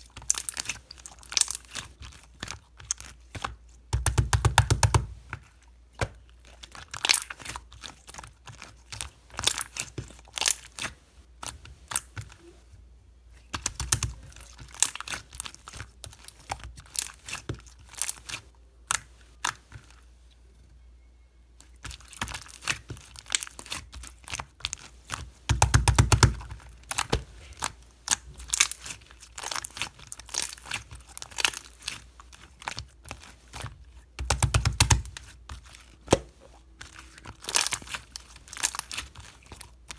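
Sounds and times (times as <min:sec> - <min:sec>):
slime crackling and popping: 0:00.1 - 0:05.2, 0:06.2 - 0:12.1, 0:21.6 - 0:39.9.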